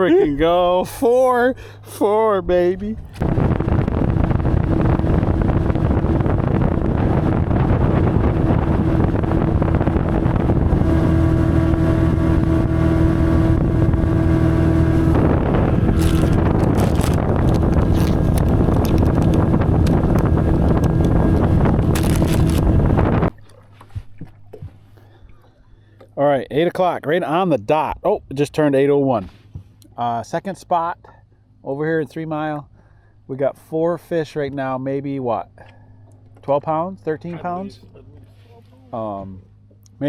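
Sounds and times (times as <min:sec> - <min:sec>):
outboard motor drone: 0:00.0 - 0:27.1, 0:32.6 - 0:40.0
wind rushing on microphone: 0:02.9 - 0:23.3.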